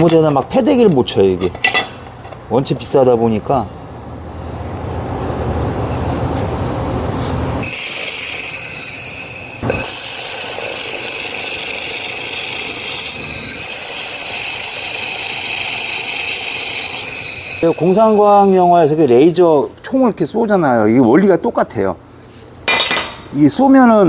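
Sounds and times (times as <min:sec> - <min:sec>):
laser welder hissing and sizzling: 0:07.6 - 0:18.7.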